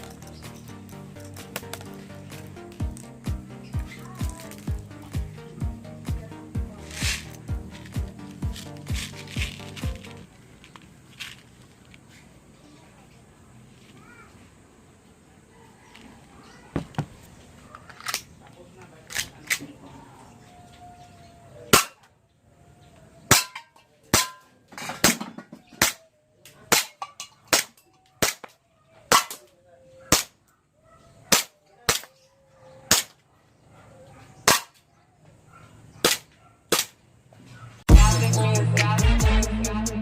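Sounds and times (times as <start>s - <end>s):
airsoft pistol shots: 36.0s - 37.0s.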